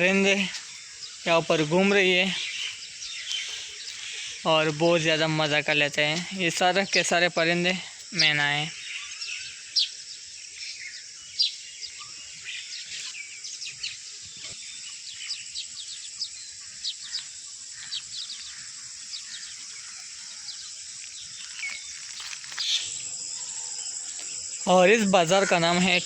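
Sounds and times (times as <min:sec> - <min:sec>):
birds chirping and squawking: 0:00.0 - 0:26.0
high-pitched insect buzz: 0:05.9 - 0:26.0.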